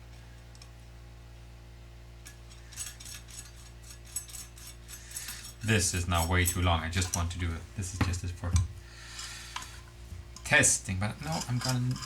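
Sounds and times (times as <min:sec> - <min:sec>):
low steady hum: 0:00.0 - 0:12.0
metal hardware clinking: 0:02.2 - 0:08.7.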